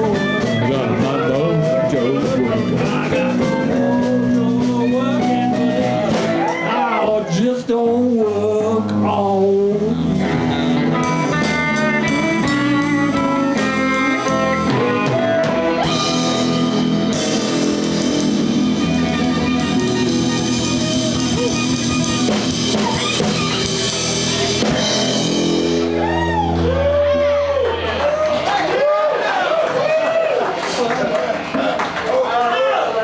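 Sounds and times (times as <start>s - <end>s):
electric guitar: 0.0s - 28.6s
blues band playing: 0.0s - 32.1s.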